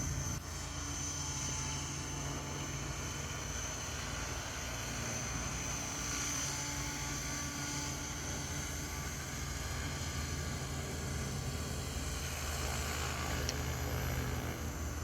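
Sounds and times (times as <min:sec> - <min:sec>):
low rotor hum: 0:00.0 - 0:15.0
model helicopter high whine: 0:00.0 - 0:15.0.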